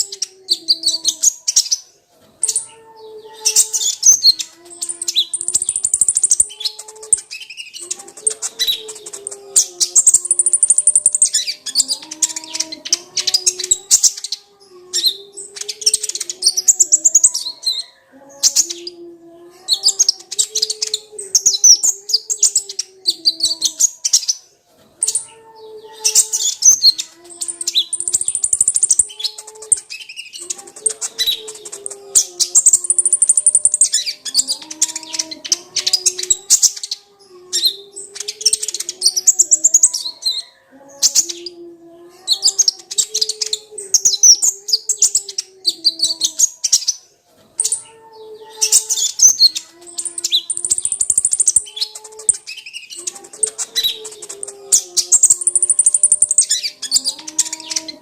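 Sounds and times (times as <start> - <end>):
bird twittering: 3.4 - 19.0, 26.0 - 41.6, 48.6 - 58.0.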